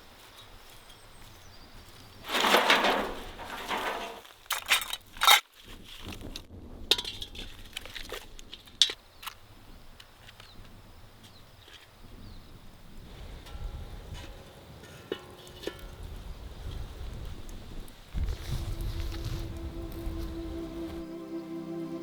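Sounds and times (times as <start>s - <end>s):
rustling or crushing noise: 1.9s - 9.4s, 14.2s - 20.4s.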